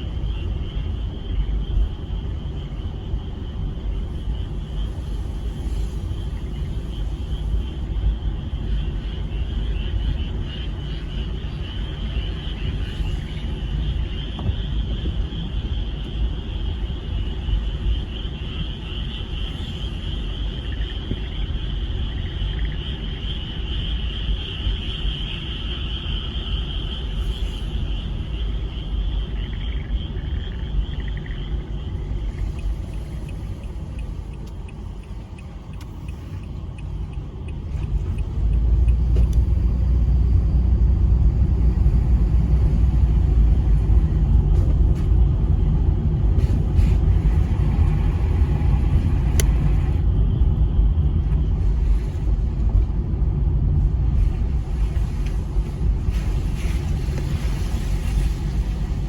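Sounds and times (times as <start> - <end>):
constant low rumble: 0.0 - 59.0
chorus of frogs calling: 8.3 - 39.0.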